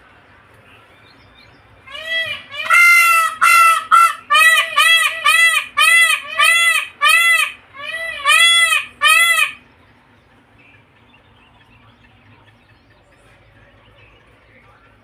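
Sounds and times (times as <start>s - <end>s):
large bird calling: 1.8s - 9.9s.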